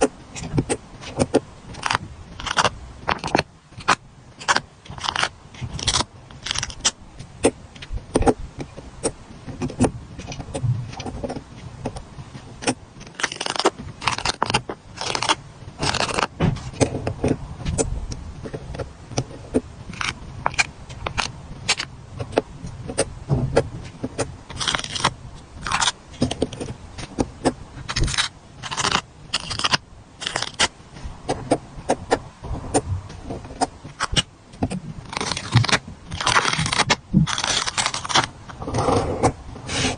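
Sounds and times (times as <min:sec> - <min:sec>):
stickers peeling: 0:12.6 - 0:16.9, 0:27.9 - 0:30.7, 0:35.0 - 0:38.3
stickers crackling: 0:35.1 - 0:38.3.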